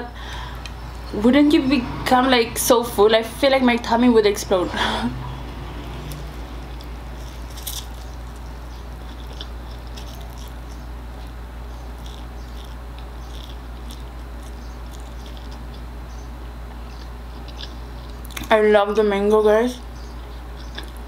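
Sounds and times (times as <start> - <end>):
steady low hum: 0.0 - 21.0
person chewing noodles: 5.4 - 15.9, 16.8 - 18.4, 20.2 - 21.0.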